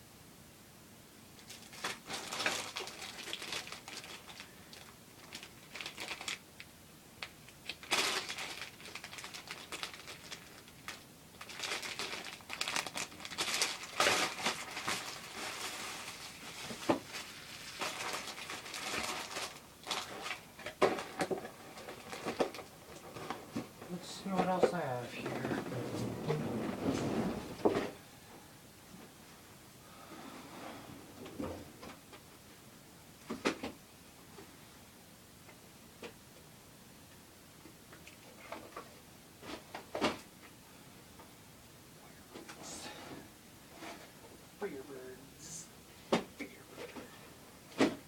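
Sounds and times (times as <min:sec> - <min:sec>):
packaging crinkling and rustling: 0:01.4 - 0:28.0.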